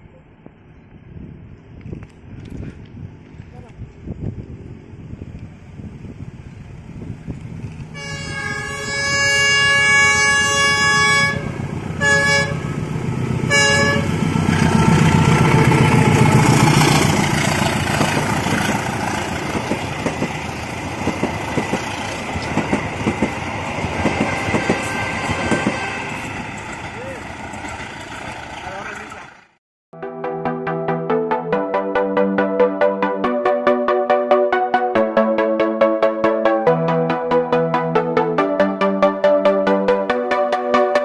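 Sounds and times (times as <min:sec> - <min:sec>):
train engine rumbling: 0:00.0 - 0:29.6
multi-tone train horn: 0:07.9 - 0:12.8, 0:13.4 - 0:17.2, 0:23.8 - 0:26.3
wheels clattering over rail joints: 0:14.3 - 0:29.4.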